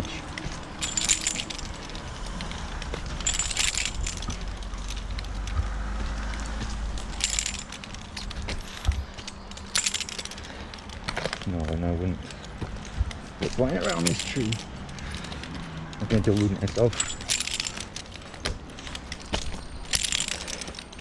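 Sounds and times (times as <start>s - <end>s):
climbing hardware clinking: 0.0s - 21.0s.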